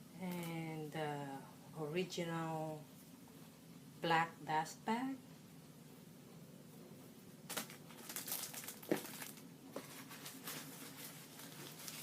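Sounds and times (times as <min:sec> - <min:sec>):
packaging rustling and crinkling: 0:07.5 - 0:12.0.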